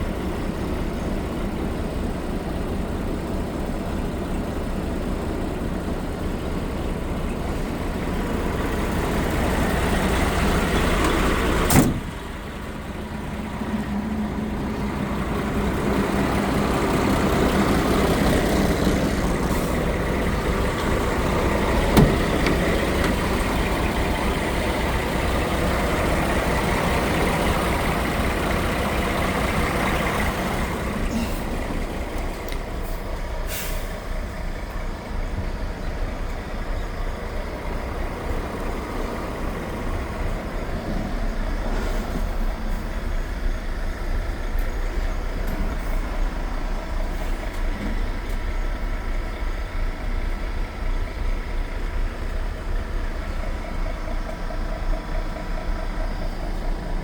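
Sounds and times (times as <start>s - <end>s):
diesel truck engine running: 0.0s - 57.0s
short hiss: 32.8s - 34.0s.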